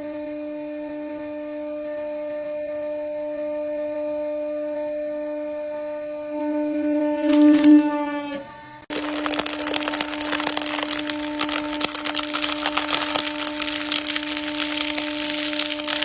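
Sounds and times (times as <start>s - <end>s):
crushing crackling and splintering: 8.9s - 16.0s.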